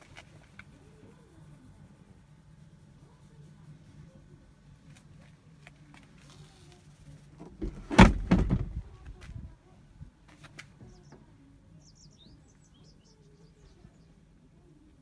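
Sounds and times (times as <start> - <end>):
knocks and rattles: 7.4 - 8.9
loud thump: 7.4 - 8.9.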